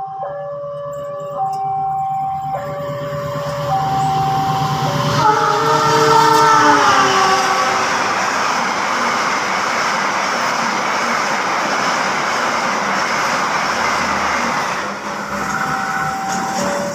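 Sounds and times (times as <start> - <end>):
steady high tone: 0.0 - 9.6, 14.8 - 16.9
passenger train passing at speed: 1.4 - 16.9.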